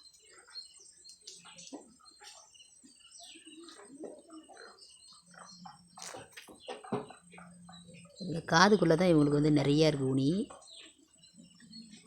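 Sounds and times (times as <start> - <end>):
bird cooing: 0.0 - 9.0
faint birds chirping: 0.0 - 12.0.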